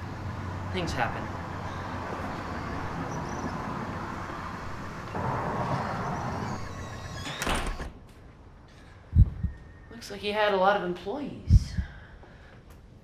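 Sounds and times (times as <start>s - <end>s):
background noise: 2.6s - 13.0s
door shutting: 4.3s - 8.0s.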